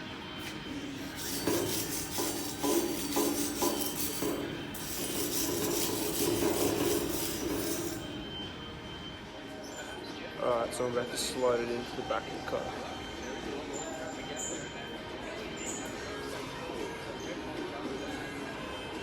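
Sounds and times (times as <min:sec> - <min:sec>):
wire brush scrubbing metal: 0:00.9 - 0:08.3.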